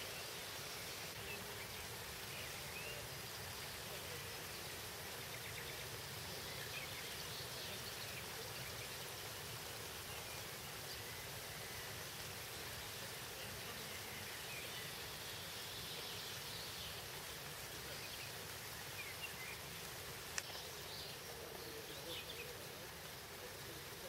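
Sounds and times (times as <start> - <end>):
rain falling: 0.0 - 24.0
faint bird chirps: 13.2 - 24.0.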